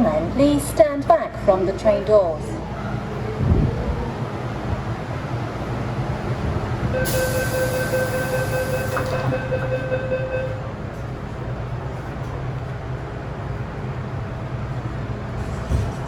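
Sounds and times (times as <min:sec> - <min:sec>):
low train rumble: 0:00.0 - 0:16.0
doors hissing shut: 0:07.0 - 0:09.5
electronic warning tone: 0:07.0 - 0:10.6.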